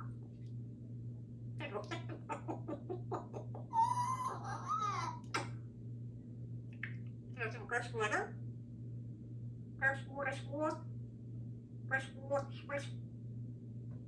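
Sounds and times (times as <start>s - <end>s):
parrot clucking: 1.6s - 5.5s
parrot whistling: 3.7s - 5.2s.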